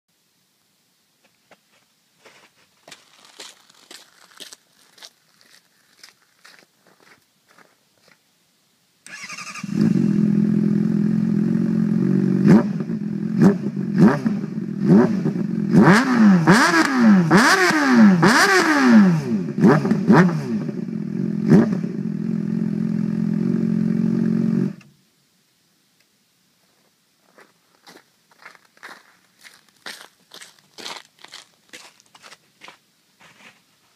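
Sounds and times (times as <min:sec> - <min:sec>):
motorcycle engine revving and idling: 0:09.2 - 0:24.9.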